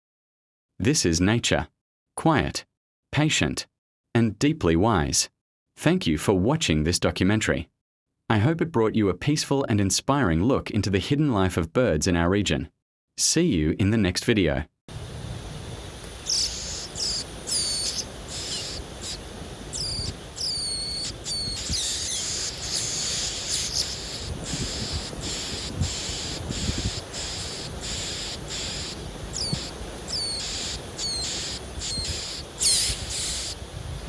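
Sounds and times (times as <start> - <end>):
small birds chirping: 16.2 - 33.6
insect chorus pulsing: 16.2 - 33.7.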